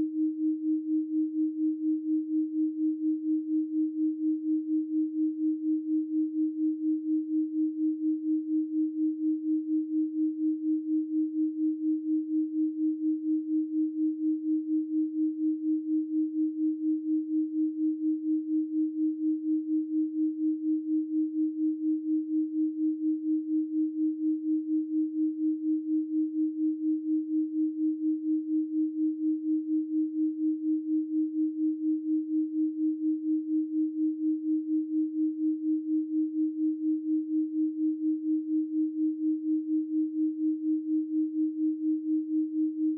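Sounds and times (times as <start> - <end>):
pulsing electronic sine tone: 0.0 - 42.9.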